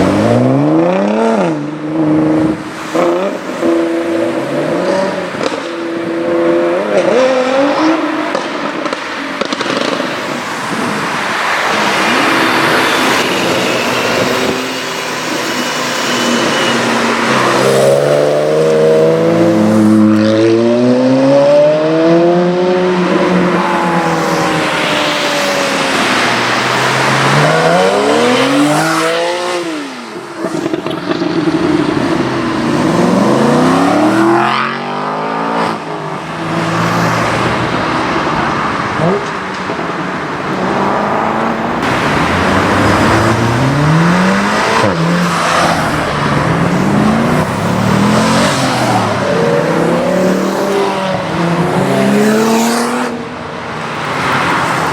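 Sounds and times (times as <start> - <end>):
car engines revving: 0.0 - 54.9
loud exhaust: 40.9 - 45.2.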